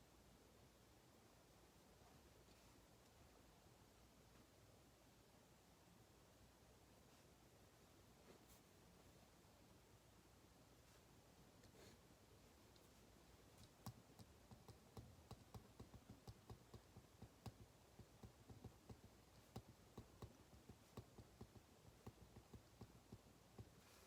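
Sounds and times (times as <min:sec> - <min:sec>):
faint desk clicks and taps: 0:13.6 - 0:23.8.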